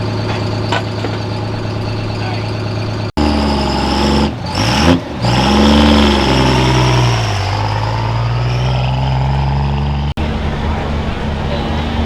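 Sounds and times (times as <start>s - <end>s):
truck engine revving hard: 2.7s - 12.0s.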